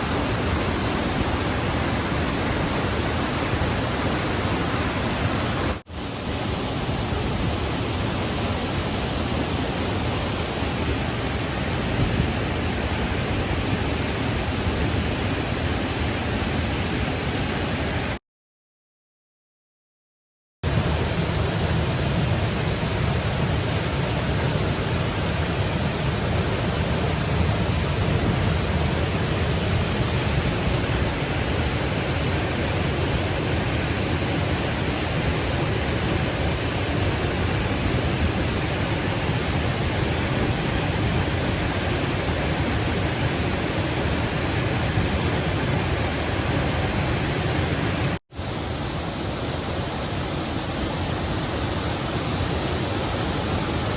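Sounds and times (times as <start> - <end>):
stream water rushing: 0.0 - 18.2, 20.6 - 53.9.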